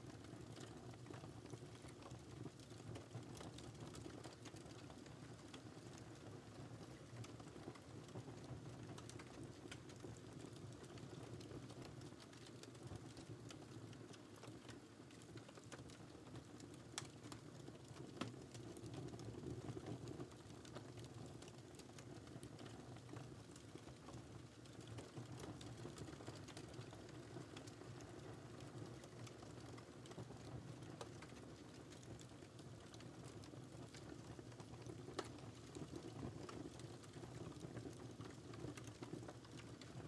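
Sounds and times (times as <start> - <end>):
wood fire crackles and pops: 0.0 - 40.0
low rumble of flames: 0.1 - 40.0.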